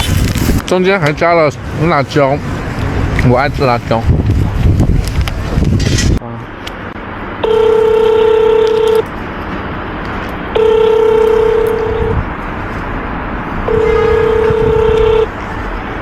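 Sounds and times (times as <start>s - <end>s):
street noise: 0.0s - 16.0s
phone ringback tone: 7.4s - 9.0s, 10.6s - 12.2s, 13.7s - 15.3s.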